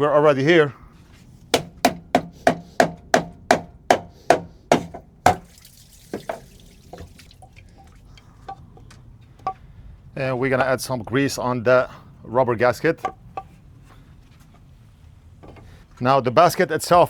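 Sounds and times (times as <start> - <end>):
sharp knocks on something hard: 1.6 - 5.5.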